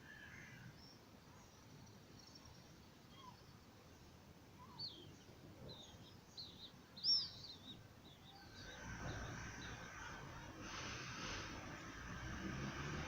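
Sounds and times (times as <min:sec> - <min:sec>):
small birds chirping: 0:00.0 - 0:12.4
rushing noise with held tone: 0:08.7 - 0:13.0.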